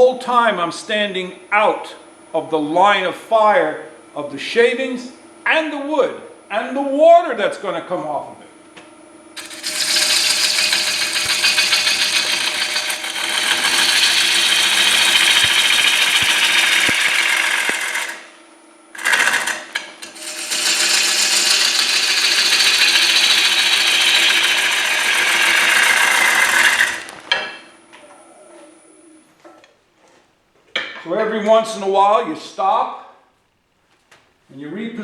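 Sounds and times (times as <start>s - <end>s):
gouge shaving wood on lathe: 9.4s - 18.3s, 19.0s - 27.3s
lathe motor hum and whine: 9.4s - 28.1s.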